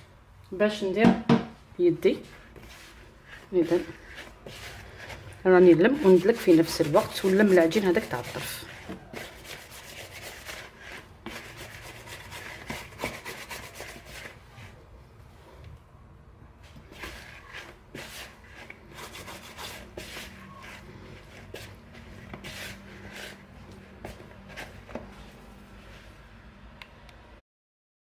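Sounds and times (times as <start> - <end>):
hands kneading dough: 1.8 - 15.7, 16.5 - 26.4.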